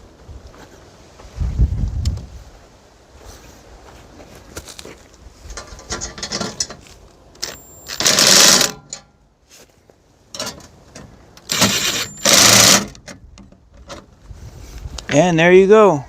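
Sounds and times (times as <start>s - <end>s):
power drill driving screws: 7.4s - 8.8s, 11.4s - 13.0s
handling clanks: 10.3s - 14.1s.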